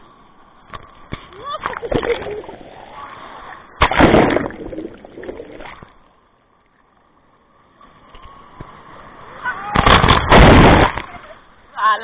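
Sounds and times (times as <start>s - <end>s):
rush of water: 0.0s - 12.0s
seawater splashing against microphone: 1.6s - 6.0s.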